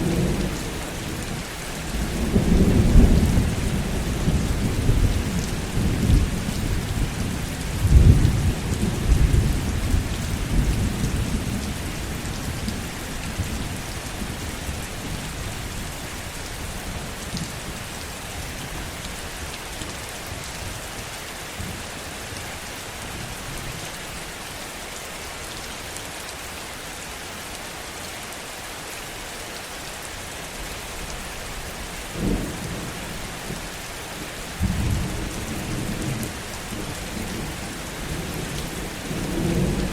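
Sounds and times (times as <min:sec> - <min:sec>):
heavy rain: 0:00.0 - 0:39.9
rolling thunder: 0:34.6 - 0:39.9.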